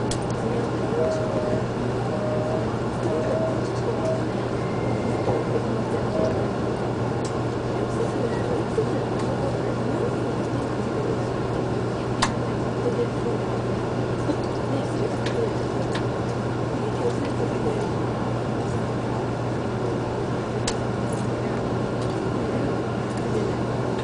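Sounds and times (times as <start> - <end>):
train cabin rumble: 0.0 - 24.0.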